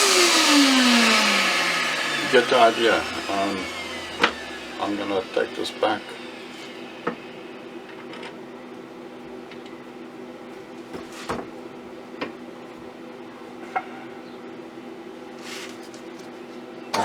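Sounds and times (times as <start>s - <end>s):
lathe motor humming: 0.0s - 8.2s.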